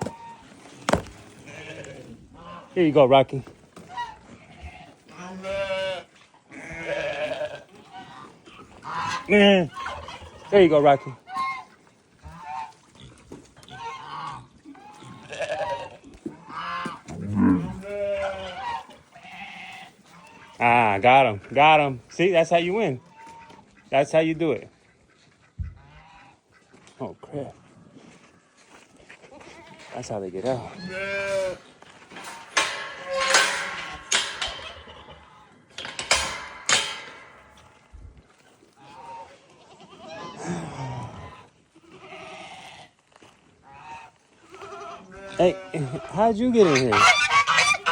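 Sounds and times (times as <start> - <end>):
goats bleating: 0.0 - 2.8, 3.8 - 13.1, 13.7 - 20.8, 29.2 - 37.9, 38.8 - 43.0, 43.7 - 47.9
sharp knocks and clatters: 32.1 - 38.0.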